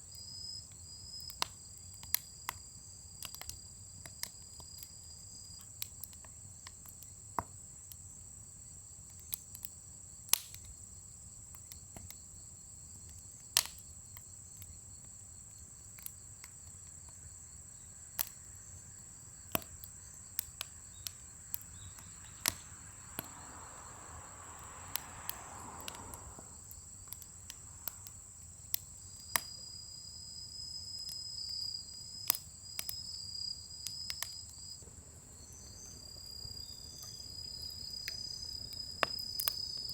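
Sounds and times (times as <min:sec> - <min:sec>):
crickets chirring: 0:00.0 - 0:39.9
firewood crackling and popping: 0:00.0 - 0:39.9
soft rush of noise: 0:21.3 - 0:28.3.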